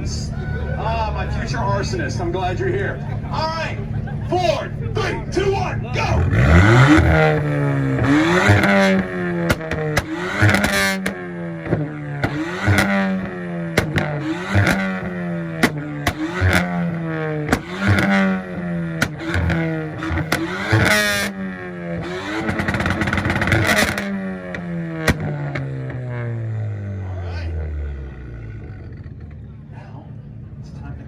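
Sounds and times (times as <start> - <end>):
car engine revving in bursts: 0.0 - 29.8
exhaust pops and crackles: 6.0 - 29.8.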